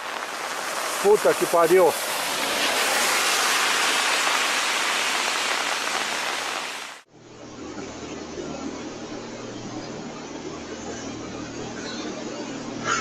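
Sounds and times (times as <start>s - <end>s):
rushing water hiss: 0.0s - 7.1s
low hum: 7.1s - 13.0s.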